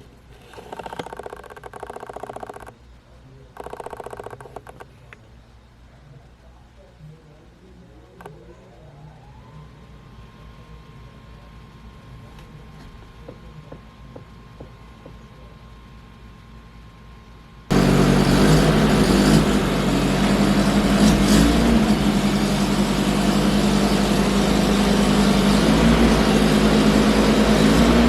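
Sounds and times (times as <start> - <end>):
vehicle engine running loudly: 17.7 - 28.0.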